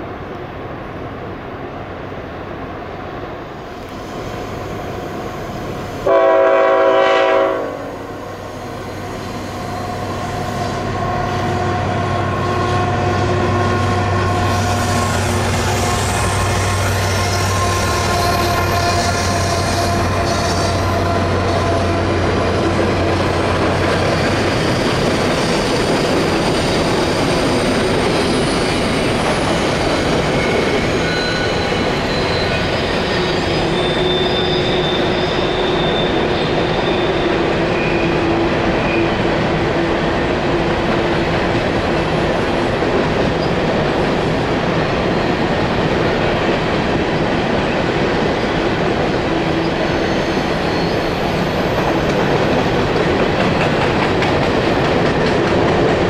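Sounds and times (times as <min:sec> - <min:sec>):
freight train wheels rumbling: 0:00.0 - 0:56.0
high-pitched wheel squeal: 0:08.3 - 0:22.4, 0:24.0 - 0:39.2, 0:49.6 - 0:52.8.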